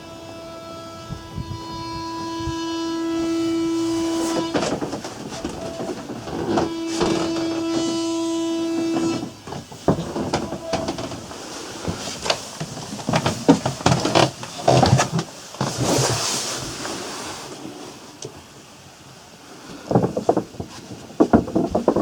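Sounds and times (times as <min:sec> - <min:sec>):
steady buzzing tone: 0:00.0 - 0:09.6
knocks and clunks: 0:00.0 - 0:15.9, 0:19.9 - 0:22.0.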